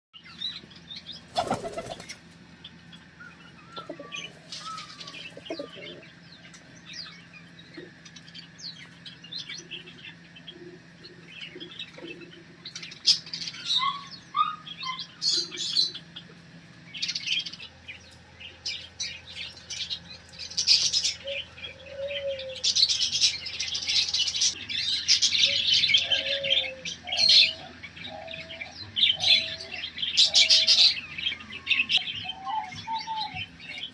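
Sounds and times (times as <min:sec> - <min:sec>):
birds chirping: 0:00.2 - 0:33.9
wings flapping: 0:01.3 - 0:02.2.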